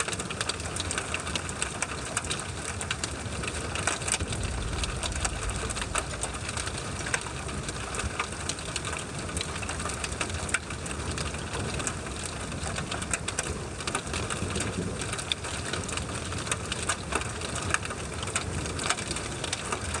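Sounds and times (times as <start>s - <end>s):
steady rain: 0.0s - 20.0s
low steady rumble: 3.0s - 11.8s.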